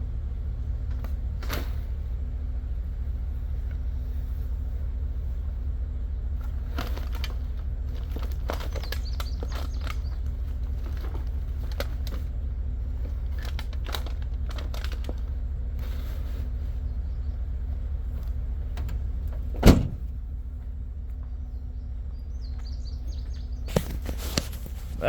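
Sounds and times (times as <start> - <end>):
truck engine running: 0.0 - 25.0
light clicks and rustles: 6.3 - 21.5, 22.5 - 25.0.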